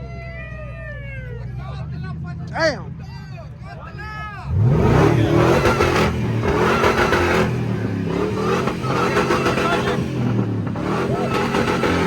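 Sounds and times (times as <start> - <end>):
high supercharger whine: 4.4 - 12.0
truck engine at high revs: 4.5 - 12.0.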